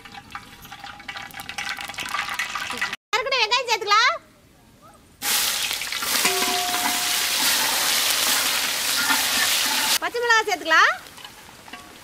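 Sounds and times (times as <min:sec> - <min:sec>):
onions sizzling in hot oil: 0:05.2 - 0:12.0.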